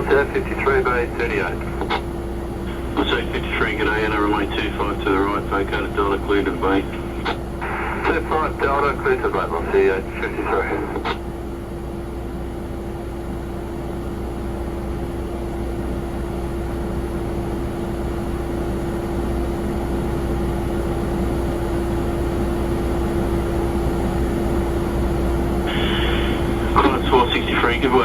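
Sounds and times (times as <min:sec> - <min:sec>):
jet engines running: 0:00.0 - 0:13.2, 0:17.3 - 0:28.0.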